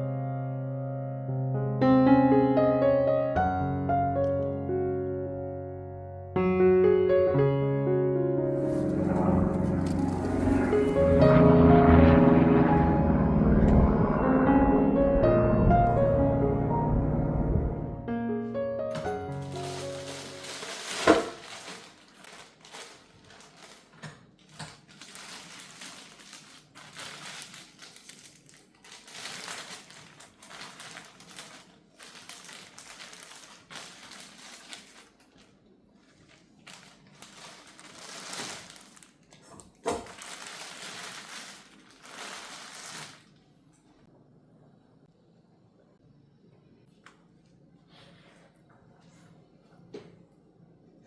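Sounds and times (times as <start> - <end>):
rustling and scraping: 8.5 - 11.4, 19.3 - 26.1.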